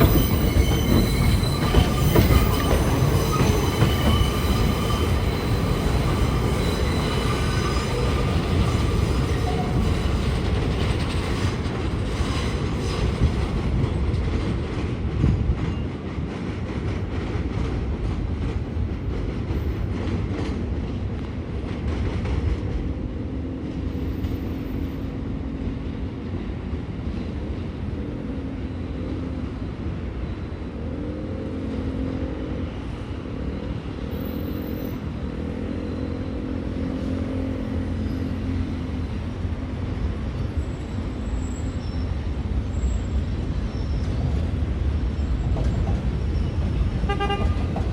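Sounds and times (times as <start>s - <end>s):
wheels clacking over rail joints: 0.0s - 22.9s, 44.0s - 47.9s.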